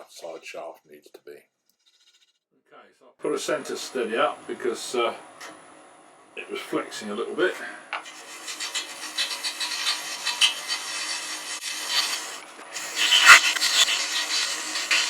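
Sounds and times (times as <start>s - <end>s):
lathe tool cutting brass rod: 8.0s - 15.0s.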